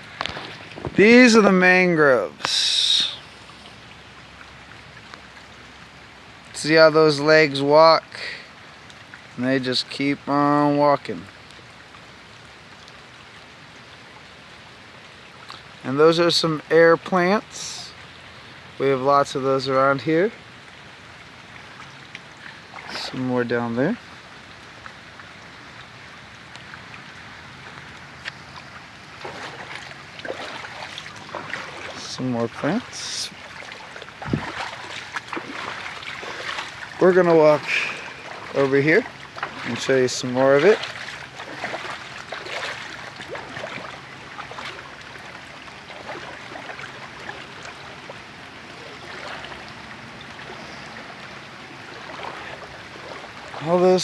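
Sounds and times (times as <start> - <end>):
water rushing: 0.0 - 54.0
light ticks: 26.5 - 27.0.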